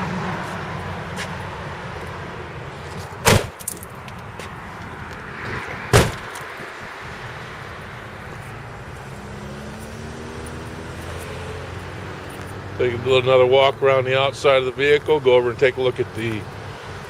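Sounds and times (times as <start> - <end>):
truck door slamming: 2.9 - 3.9, 5.9 - 6.4.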